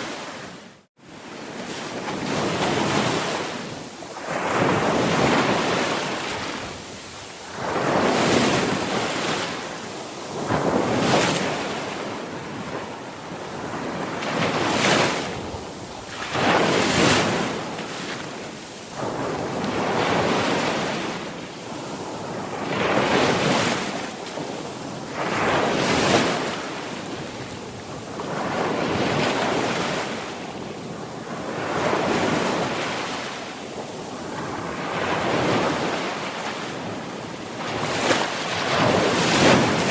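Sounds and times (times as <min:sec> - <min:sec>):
waves breaking: 0:13.6 - 0:30.3, 0:30.9 - 0:39.9.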